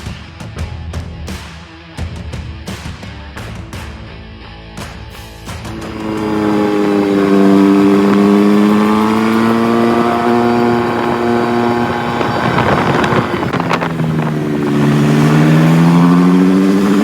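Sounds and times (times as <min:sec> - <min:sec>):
rally car engine revving: 0:05.5 - 0:17.0.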